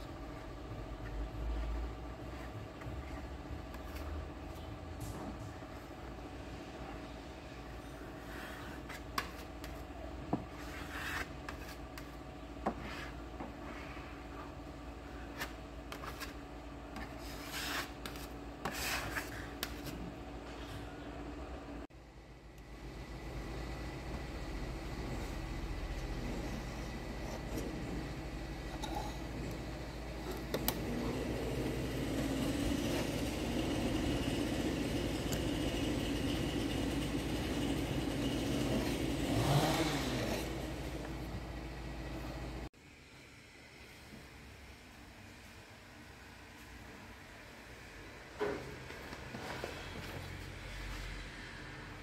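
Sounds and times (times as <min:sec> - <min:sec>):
sandpaper swishing on panel: 0:10.5 - 0:12.1, 0:17.1 - 0:20.0
machine running: 0:22.6 - 0:42.4.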